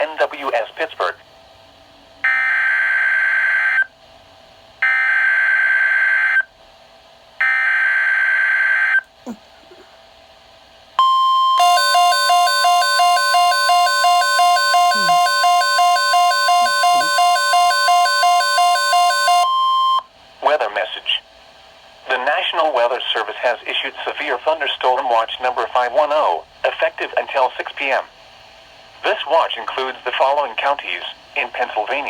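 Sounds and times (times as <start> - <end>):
rapid beeping alert: 11.0 - 20.0
warning alarm tone: 11.0 - 20.0.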